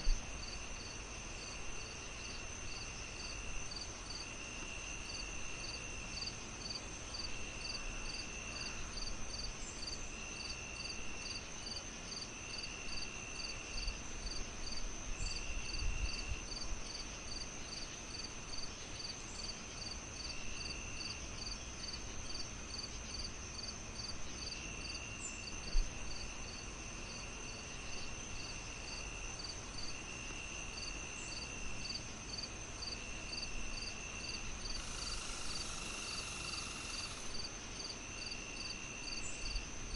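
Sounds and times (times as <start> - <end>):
crickets chirping: 0.0 - 39.9
low insect trill: 0.0 - 39.9
steady hiss: 25.4 - 39.9.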